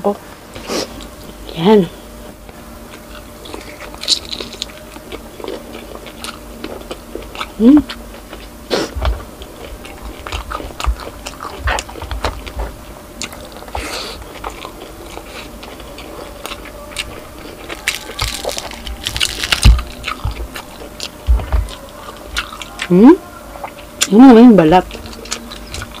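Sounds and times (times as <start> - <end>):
chewing and crunching crispy food: 2.9 - 26.0
crisp skin crackling torn by hand: 17.8 - 20.0.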